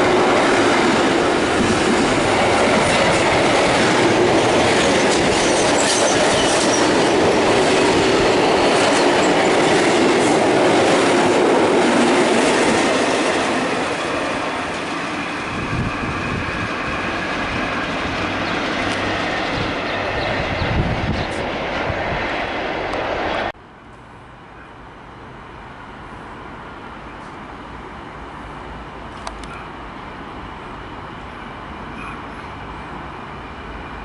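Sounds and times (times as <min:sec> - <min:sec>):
train wheels on rails: 0:00.0 - 0:24.3.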